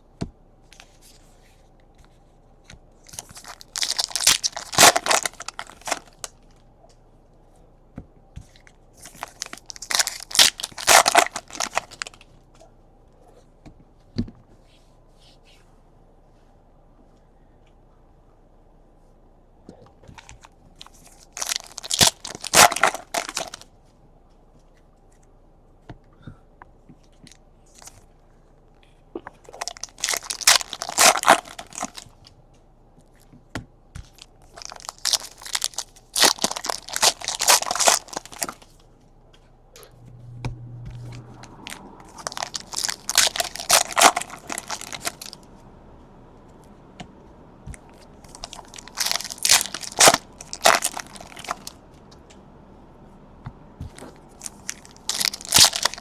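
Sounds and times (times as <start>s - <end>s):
foil wrappers tearing and crinkling: 3.1s - 6.3s, 9.0s - 12.2s, 20.8s - 23.6s, 29.6s - 32.1s, 34.1s - 38.7s, 41.6s - 45.5s, 47.8s - 51.8s, 53.9s - 56.0s.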